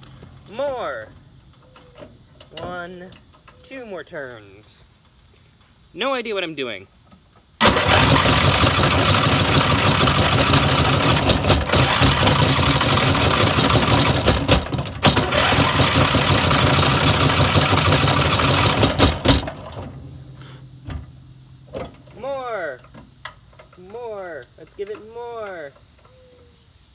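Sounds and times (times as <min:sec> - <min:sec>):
lawn mower engine running: 0:00.0 - 0:03.6, 0:07.6 - 0:26.1.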